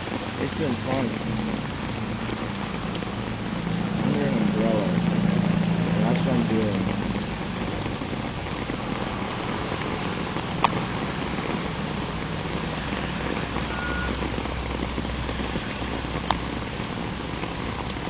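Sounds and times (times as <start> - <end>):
low rumble: 0.0 - 18.0
rain on an umbrella: 0.0 - 18.0.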